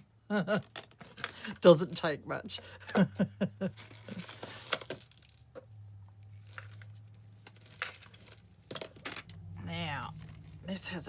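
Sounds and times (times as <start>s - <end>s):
jewellery chains and beads clinking: 3.7s - 11.0s.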